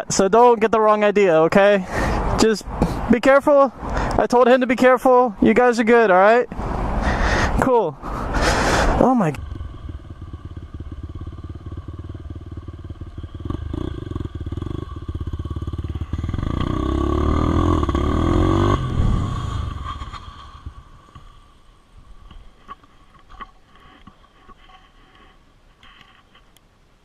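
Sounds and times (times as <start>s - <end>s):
motorcycle engine running: 9.2s - 21.0s.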